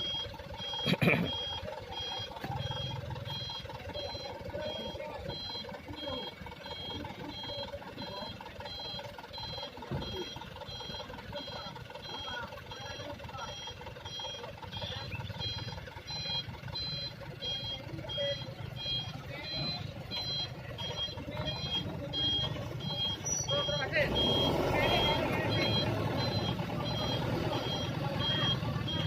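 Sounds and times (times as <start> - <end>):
reversing alarm beeping: 0.0 - 29.0
truck engine running: 0.0 - 29.0.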